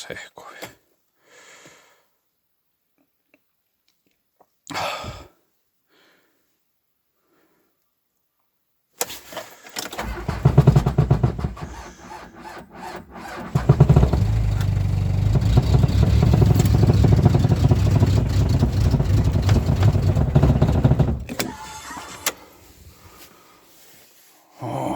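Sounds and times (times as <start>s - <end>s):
starter motor cranking engine: 9.8s - 22.6s.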